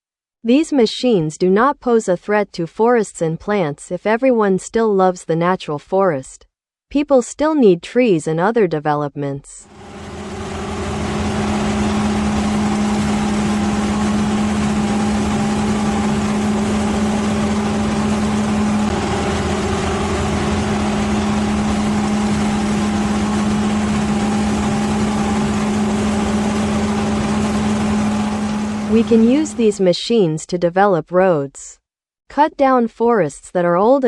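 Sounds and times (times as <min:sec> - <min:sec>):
machine engine droning: 0:09.7 - 0:29.8.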